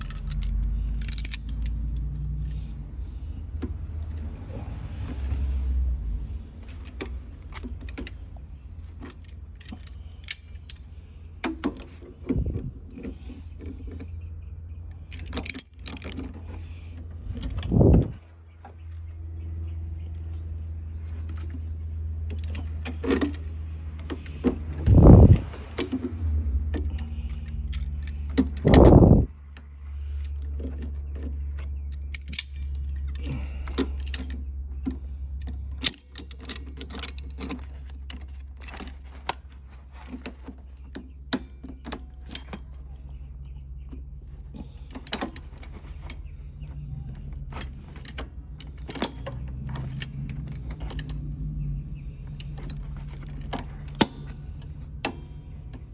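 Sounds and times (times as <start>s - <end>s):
metallic tool clicks and clinks: 0.0s - 2.8s, 6.6s - 12.7s, 26.7s - 29.2s, 31.8s - 43.0s, 44.5s - 55.9s
steady low hum: 0.0s - 55.9s.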